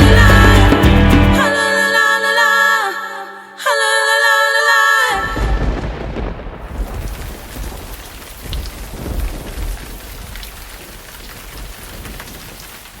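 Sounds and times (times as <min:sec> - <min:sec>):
thunder rumbling: 0:05.2 - 0:13.0
rain hissing: 0:05.3 - 0:13.0.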